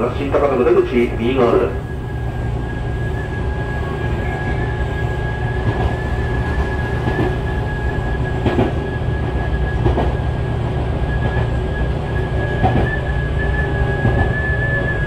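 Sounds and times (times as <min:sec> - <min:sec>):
train wheels rumbling on rails: 0:00.0 - 0:15.0
track knocks: 0:05.5 - 0:10.3, 0:11.1 - 0:14.7.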